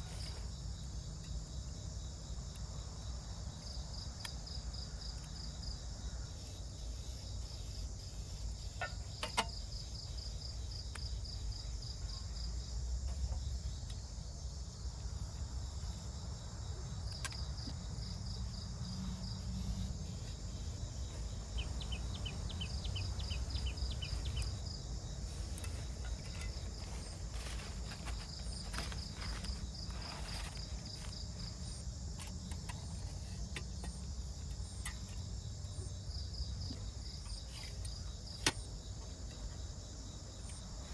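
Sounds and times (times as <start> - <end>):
insects chirping: 0.0 - 40.9.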